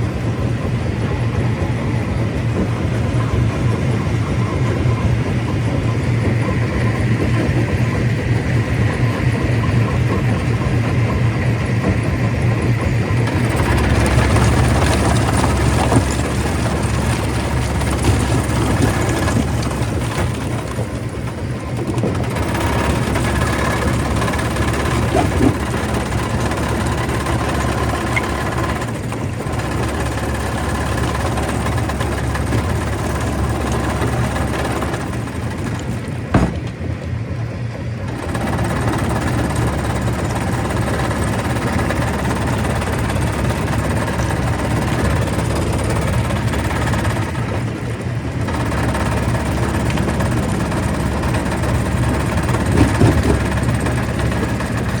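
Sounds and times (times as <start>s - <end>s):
stone crusher drone: 0.0s - 37.1s, 38.0s - 55.0s
sharp knocks: 36.3s - 36.9s.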